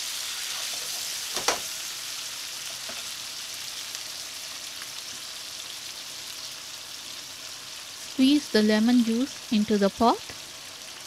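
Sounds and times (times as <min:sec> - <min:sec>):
prawns sizzling in oil: 0:00.0 - 0:11.0.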